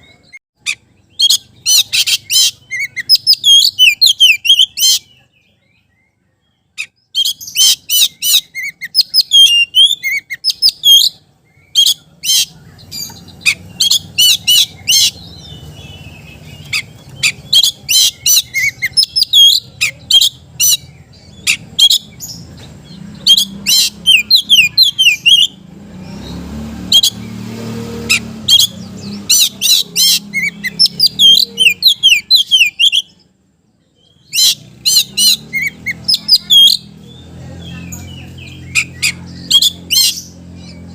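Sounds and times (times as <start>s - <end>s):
bird singing whistled chirps: 0.0s - 40.9s.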